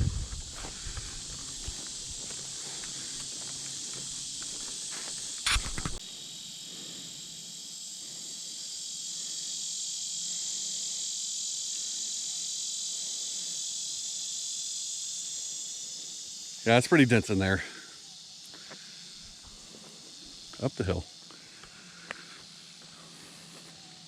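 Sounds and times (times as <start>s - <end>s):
footsteps on a trail: 0.0s - 6.0s, 21.6s - 24.0s
insects buzzing: 0.0s - 24.0s.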